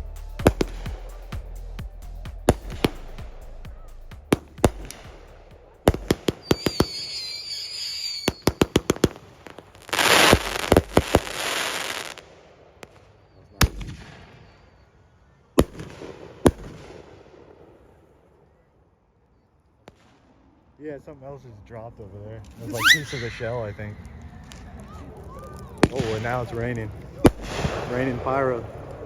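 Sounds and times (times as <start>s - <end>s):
firework whistles: 0.0s - 12.2s, 22.5s - 24.7s, 27.3s - 29.0s
firework crackle: 0.0s - 13.1s, 22.5s - 29.0s
firework bangs: 0.0s - 14.6s, 22.6s - 25.0s, 25.6s - 29.0s.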